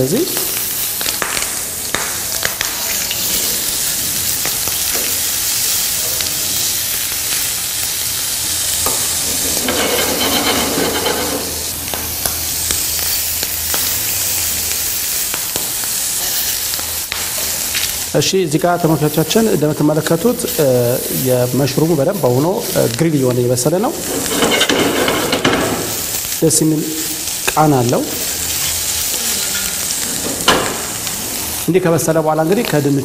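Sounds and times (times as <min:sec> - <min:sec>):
mushrooms sizzling on grill pan: 0:00.0 - 0:33.0.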